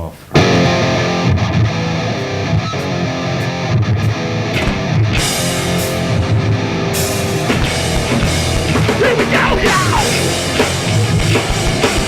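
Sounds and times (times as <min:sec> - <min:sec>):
distorted electric guitar riff: 0:00.3 - 0:12.0
cymbal crashes: 0:04.6 - 0:08.8.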